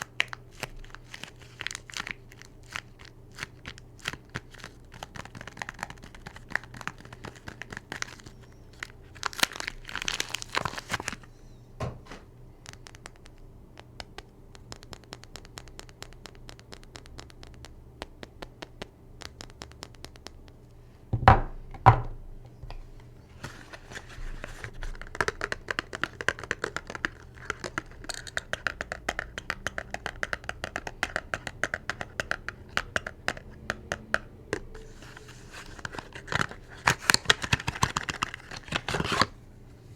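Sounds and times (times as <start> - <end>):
wrapper crinkling and tearing: 0.0 - 11.3, 34.8 - 39.4.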